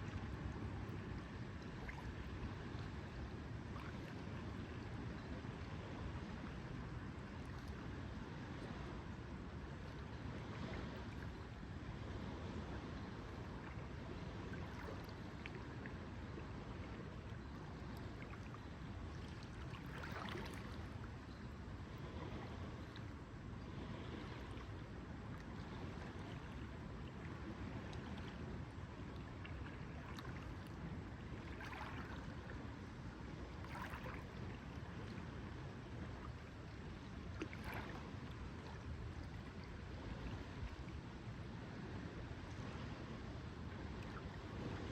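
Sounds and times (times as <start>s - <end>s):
lake water lapping: 14.1s - 16.0s, 17.6s - 21.1s, 27.5s - 40.9s
small water splashes: 14.4s - 16.0s, 17.5s - 21.0s, 29.0s - 32.6s, 33.5s - 35.3s, 37.2s - 40.4s.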